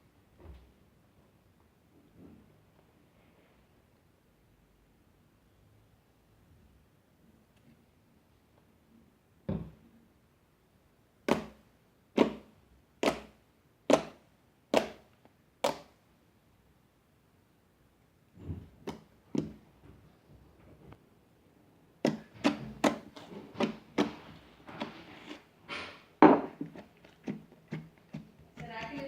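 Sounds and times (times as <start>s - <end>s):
thump: 9.5s - 9.8s, 25.7s - 26.6s.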